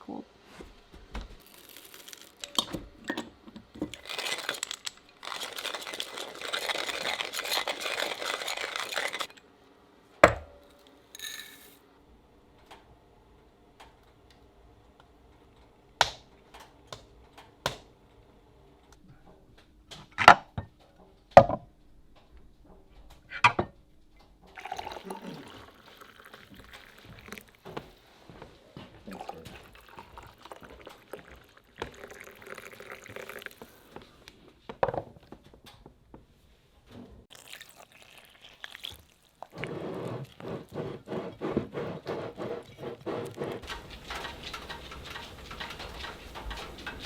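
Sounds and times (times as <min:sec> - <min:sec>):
utensils and dishes clinking: 0:01.5 - 0:09.4, 0:10.7 - 0:11.8
liquid pouring and mixing: 0:03.8 - 0:09.4, 0:24.5 - 0:28.0, 0:29.0 - 0:34.3, 0:37.3 - 0:47.0.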